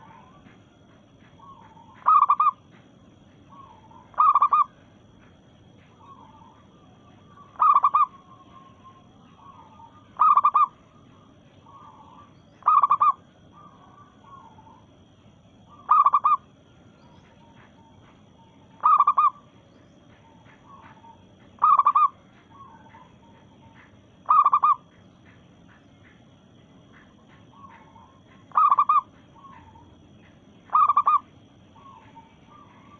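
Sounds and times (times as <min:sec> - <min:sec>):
dove cooing: 0:00.0 - 0:00.6, 0:01.4 - 0:02.6, 0:03.5 - 0:04.8, 0:06.0 - 0:10.8, 0:11.6 - 0:14.9, 0:15.7 - 0:16.4, 0:18.8 - 0:19.5, 0:20.2 - 0:24.9, 0:27.5 - 0:29.9, 0:30.7 - 0:32.9.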